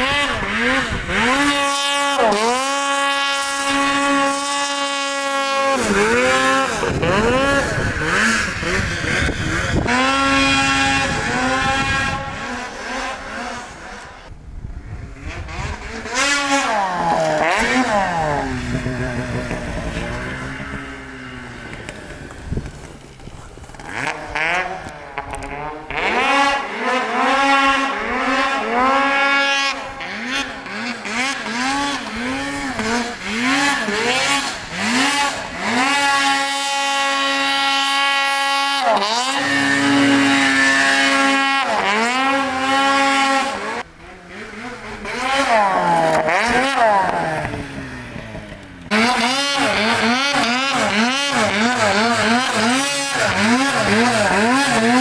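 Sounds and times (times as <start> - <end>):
snowmobile engine revving: 0.0 - 55.0.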